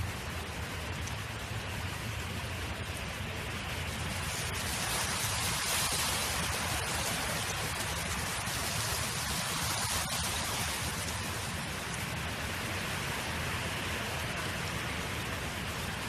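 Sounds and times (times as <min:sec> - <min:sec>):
wind rushing: 0:03.6 - 0:12.3.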